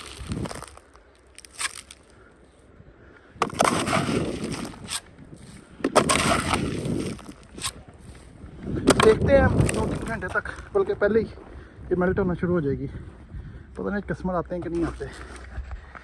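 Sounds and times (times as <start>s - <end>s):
rough scraping on ice: 0.0s - 2.1s, 3.4s - 10.7s
snow crunching: 0.0s - 2.1s, 3.5s - 11.5s
ice cracking: 0.0s - 2.2s, 3.4s - 7.9s, 8.9s - 10.7s.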